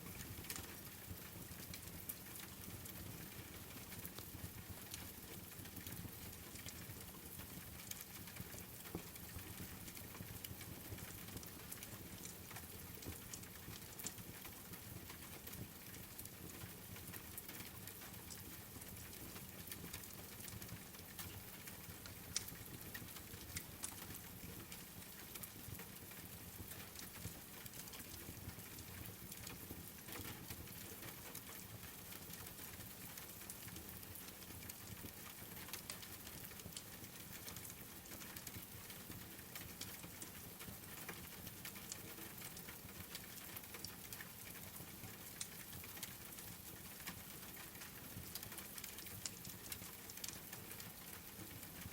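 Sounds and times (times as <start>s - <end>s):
rain pattering: 0.0s - 51.9s
wood fire crackling and popping: 32.3s - 38.8s, 39.4s - 51.6s.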